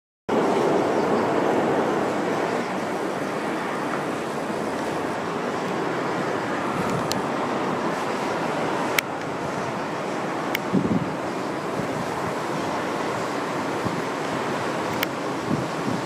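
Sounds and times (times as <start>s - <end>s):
jet engines rumbling: 0.3s - 16.0s
strong wind roaring: 0.3s - 16.0s.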